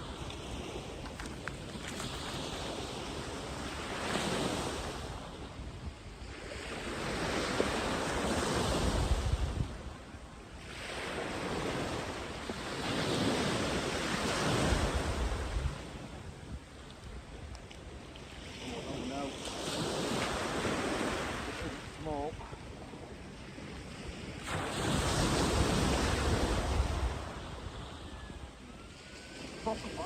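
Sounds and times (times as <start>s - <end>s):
surf breaking on sand: 24.2s - 30.0s.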